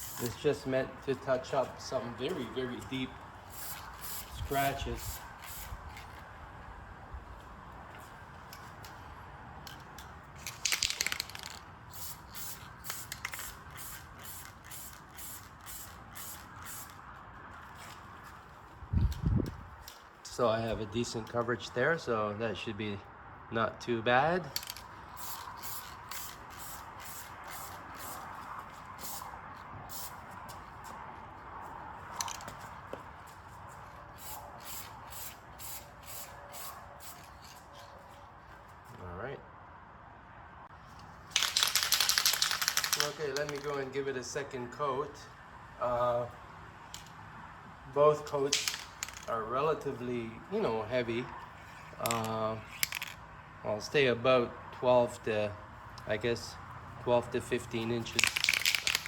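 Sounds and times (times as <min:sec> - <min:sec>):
spray paint can hissing: 0:00.0 - 0:00.4, 0:03.4 - 0:06.1, 0:10.4 - 0:17.0, 0:24.6 - 0:29.3, 0:29.9 - 0:30.2, 0:34.1 - 0:37.6, 0:41.3 - 0:43.7, 0:58.0 - 0:59.0.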